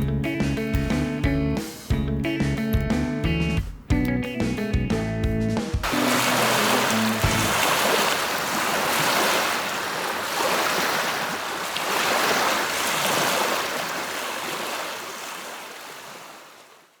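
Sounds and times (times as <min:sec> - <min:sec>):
small waves washing against shore: 0:05.8 - 0:17.0.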